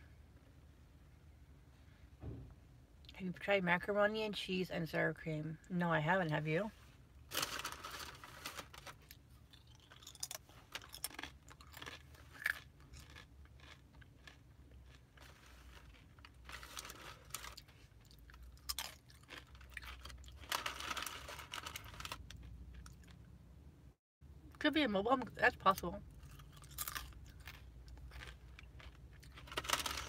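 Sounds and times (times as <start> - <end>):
chewing with wet clicks and crunches: 8.9 - 23.3, 26.1 - 30.0.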